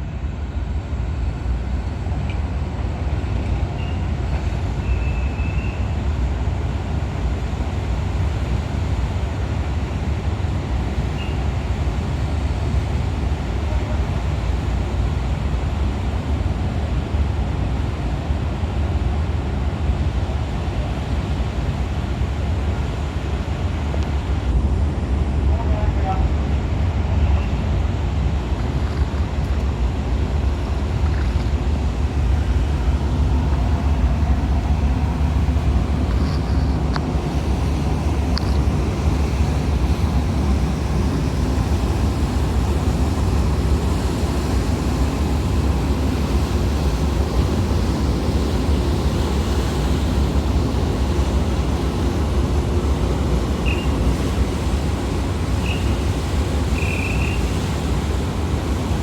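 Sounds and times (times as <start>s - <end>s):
ship engines rumbling: 0.0s - 59.0s
wind: 0.0s - 59.0s
water noise: 26.2s - 59.0s.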